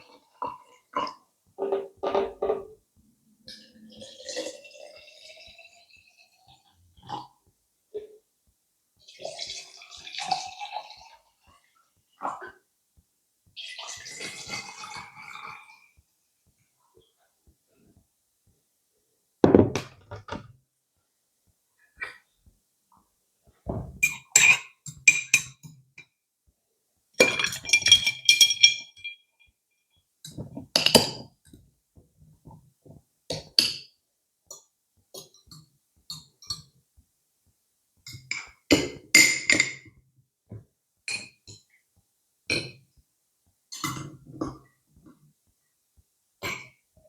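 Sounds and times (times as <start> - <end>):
dishes and cutlery clinking: 1.6 - 2.8, 23.8 - 26.1, 27.2 - 29.3, 30.3 - 31.3, 38.1 - 39.9.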